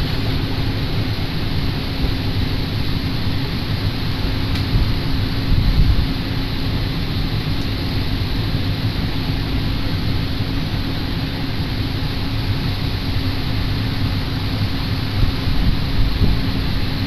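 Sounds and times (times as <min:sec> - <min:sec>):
engine hum: 0:00.0 - 0:17.0
railcar rumbling: 0:00.0 - 0:17.0.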